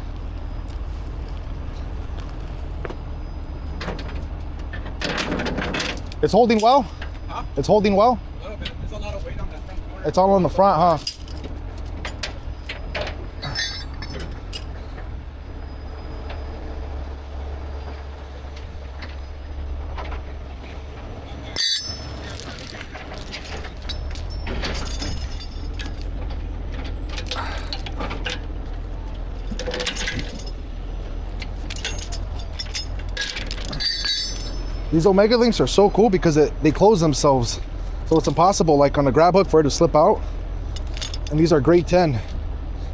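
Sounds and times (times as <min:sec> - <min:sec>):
chains and hooks clanking: 0:03.7 - 0:15.0, 0:21.4 - 0:42.5
diesel engine idling: 0:05.9 - 0:42.9.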